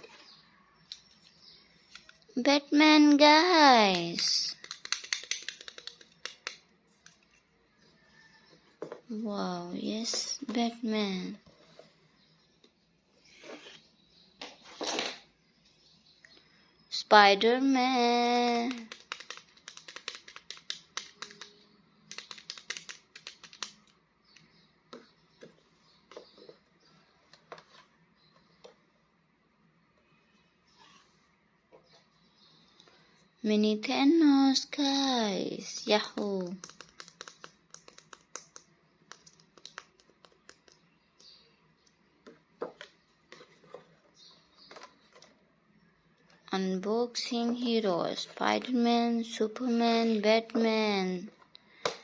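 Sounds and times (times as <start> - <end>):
plastic figures clicking: 3.8 - 7.4, 18.2 - 24.5, 36.2 - 41.4.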